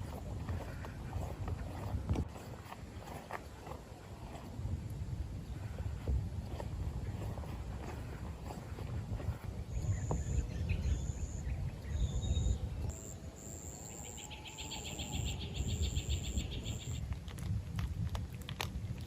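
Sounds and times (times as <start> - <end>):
steady low rumble: 0.0 - 13.4.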